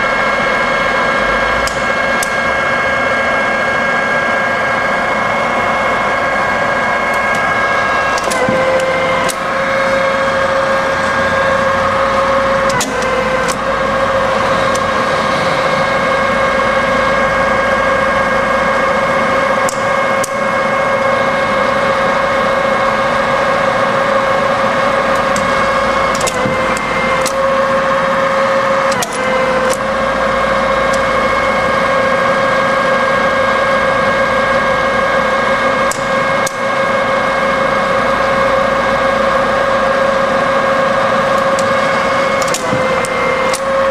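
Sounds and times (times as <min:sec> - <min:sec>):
milling machine whine: 0:00.0 - 0:43.9
sharp mechanical clicks: 0:01.4 - 0:02.4, 0:07.1 - 0:15.1, 0:19.5 - 0:21.1, 0:25.1 - 0:29.9, 0:35.8 - 0:36.7, 0:41.4 - 0:43.9.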